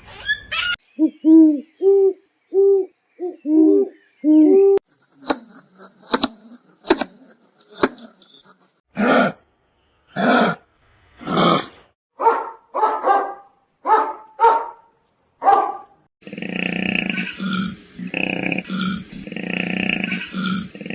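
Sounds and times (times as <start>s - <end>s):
dog barking: 12.2s - 16.0s.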